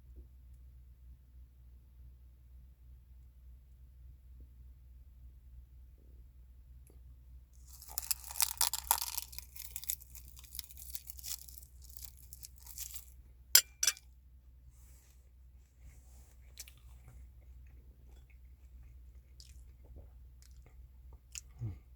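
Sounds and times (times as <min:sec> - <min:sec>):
chewing: 0:07.6 - 0:13.1, 0:16.5 - 0:21.8
crunching while eating: 0:07.6 - 0:13.7, 0:16.3 - 0:21.9.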